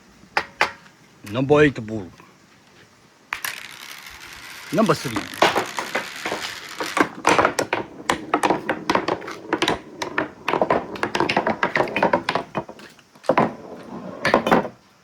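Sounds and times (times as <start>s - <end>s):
marbles rolling down a track: 3.4s - 12.7s.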